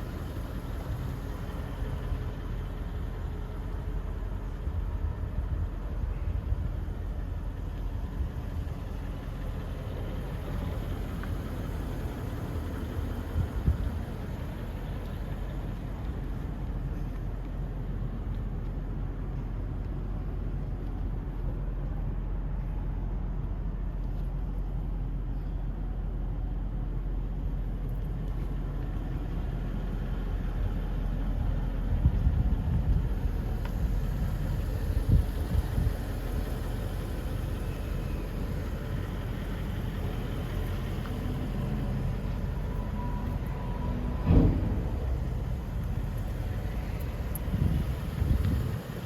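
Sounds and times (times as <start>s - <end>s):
car engine rumble: 0.0s - 49.0s
road noise: 0.0s - 49.0s
low thumps: 44.0s - 45.8s.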